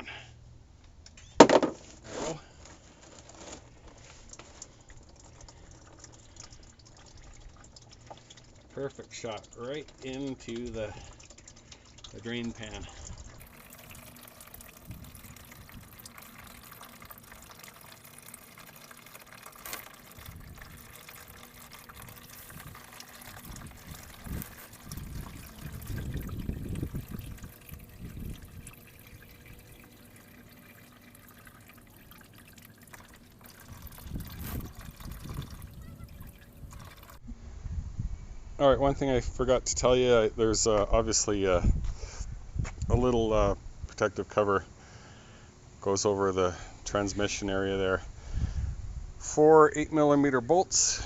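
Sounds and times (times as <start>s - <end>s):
engine oil draining into pan: 2.7s - 37.2s
low rumbles: 4.9s - 39.3s.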